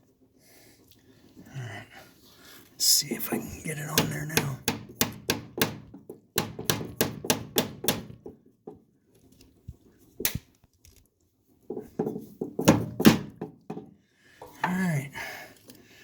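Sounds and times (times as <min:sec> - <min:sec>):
sharp knocks and clicks on metal parts: 0:04.0 - 0:08.8.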